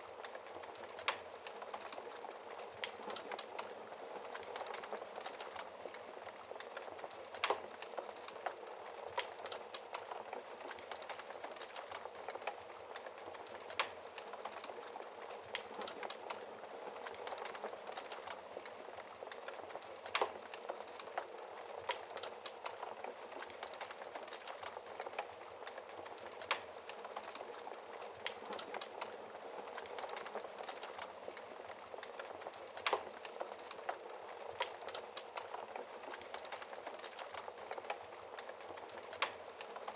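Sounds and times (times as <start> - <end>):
fire crackling: 0.0 - 39.9.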